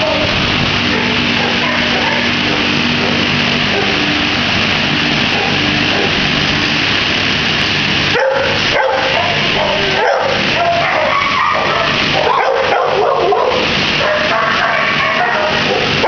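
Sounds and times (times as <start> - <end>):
many dogs barking and yelping: 0.8 - 4.1, 5.3 - 6.2, 8.1 - 16.0.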